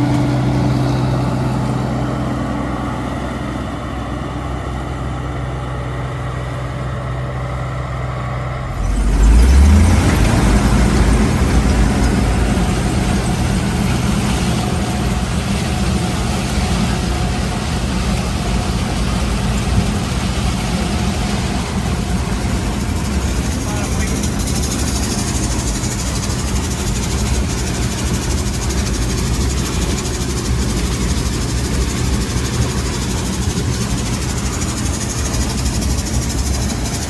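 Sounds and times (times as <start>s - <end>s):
combine engine hum: 0.0s - 37.0s
rushing machine sound: 0.0s - 37.0s.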